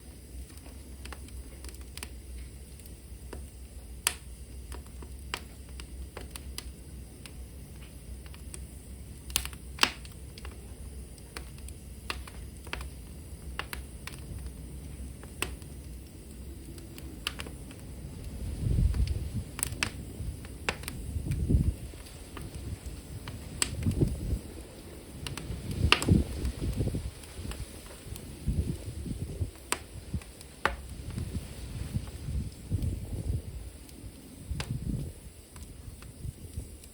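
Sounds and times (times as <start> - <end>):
wood fire crackling: 0.0 - 36.9.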